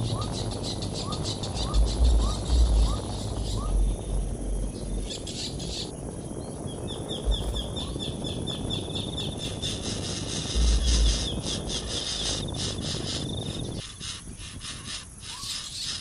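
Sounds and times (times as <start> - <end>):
low rumbles: 0.0 - 13.8
outdoor background noise: 0.0 - 16.0.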